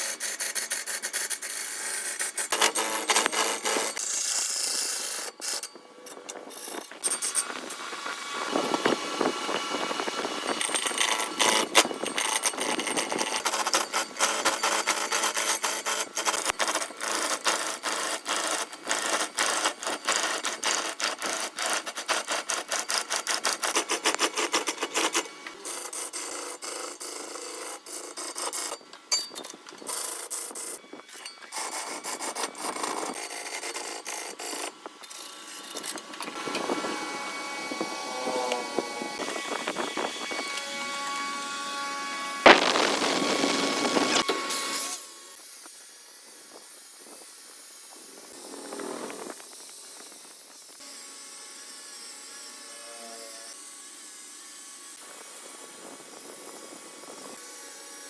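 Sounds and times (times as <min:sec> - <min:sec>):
hand tool scraping hardwood: 0:00.0 - 0:25.5.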